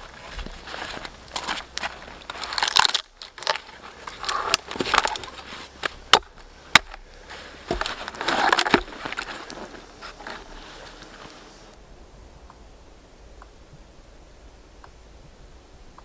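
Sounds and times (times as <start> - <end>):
dry wood crackling and breaking: 0.0 - 11.8.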